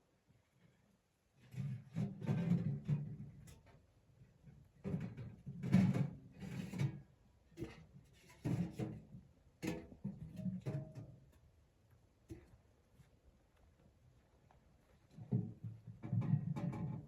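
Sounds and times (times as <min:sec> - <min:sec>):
objects knocking and scraping: 0:04.8 - 0:11.2, 0:15.1 - 0:17.0.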